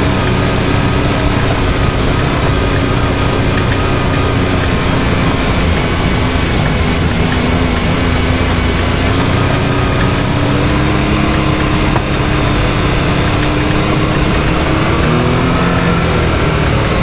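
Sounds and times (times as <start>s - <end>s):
vehicle engine running: 0.0s - 17.0s
vehicle rumbling and rattling: 0.0s - 17.0s.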